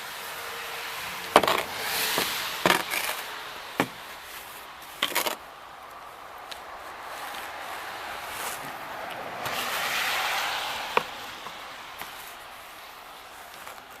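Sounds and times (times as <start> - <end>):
hiss of snow: 0.0 - 3.5, 6.9 - 13.9
brush scraping snow off car: 1.3 - 5.5, 6.8 - 14.0.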